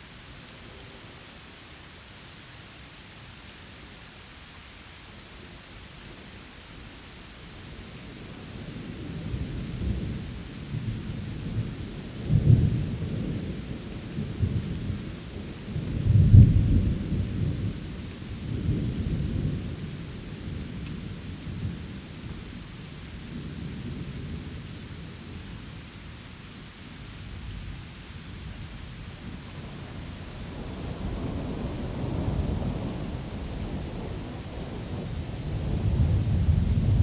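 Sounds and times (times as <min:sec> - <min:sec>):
steady rain: 0:00.0 - 0:37.0
rolling thunder: 0:15.7 - 0:17.8, 0:29.2 - 0:37.0.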